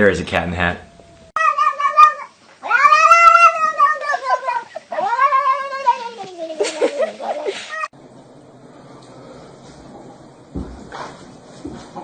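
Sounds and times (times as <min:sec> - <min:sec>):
cat yowling: 0:00.8 - 0:07.9.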